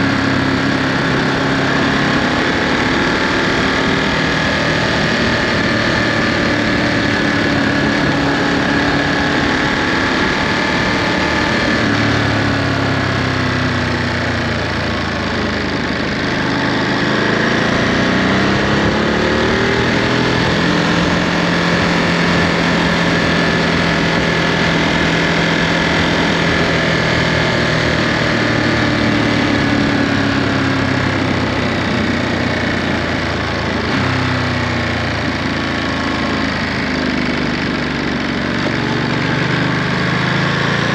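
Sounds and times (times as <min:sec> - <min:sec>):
motorcycle engine: 0:00.0 - 0:40.9.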